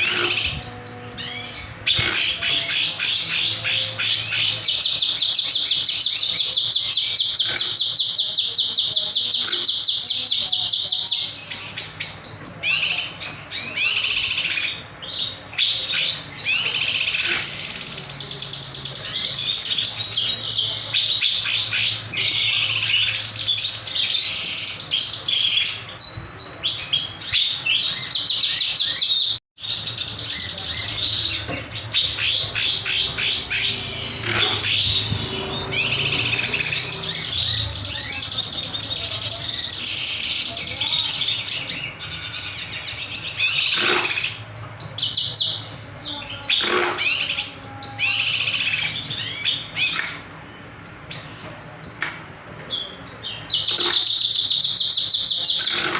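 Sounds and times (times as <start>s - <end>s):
songbird singing: 0.0s - 55.9s.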